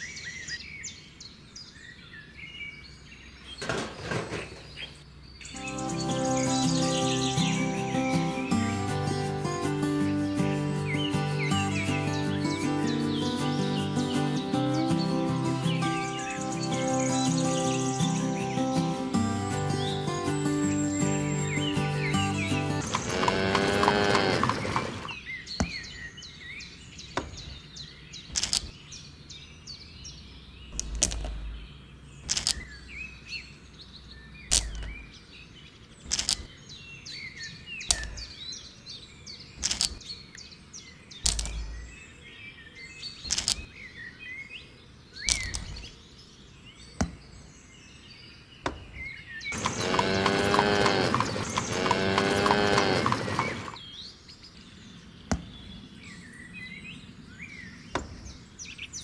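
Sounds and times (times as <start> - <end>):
birds chirping: 0.0 - 59.0
loud drawn-out animal call: 22.8 - 25.2, 49.6 - 53.8
deeper thumps: 30.8 - 31.8, 34.5 - 35.2, 41.3 - 42.0.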